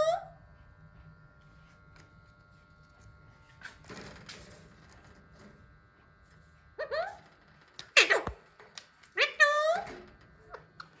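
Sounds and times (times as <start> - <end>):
parakeet squawks: 7.9 - 8.4.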